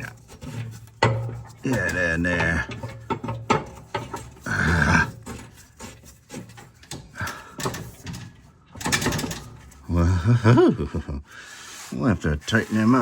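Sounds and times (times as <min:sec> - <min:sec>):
metal clicks and knocks: 0:00.1 - 0:09.9.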